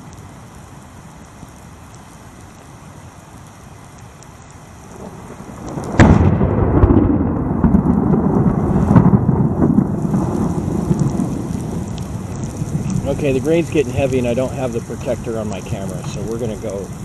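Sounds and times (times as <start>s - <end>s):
steady rain hiss: 0.0s - 17.0s
thunderclap and rumbling thunder: 4.9s - 17.0s.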